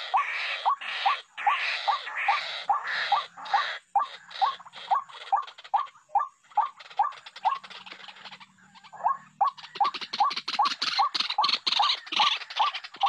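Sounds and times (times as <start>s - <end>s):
waterhen harsh croaking calls: 0.0s - 13.0s.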